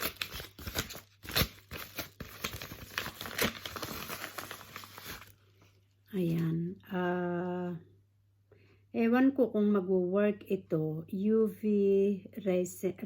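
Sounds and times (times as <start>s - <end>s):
packaging crinkling and rustling: 0.0s - 6.5s.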